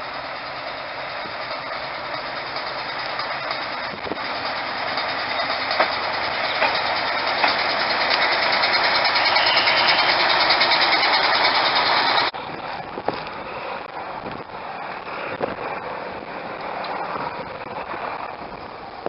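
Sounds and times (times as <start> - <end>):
diesel locomotive engine running: 0.0 - 19.0
scattered knocks: 5.8 - 7.7.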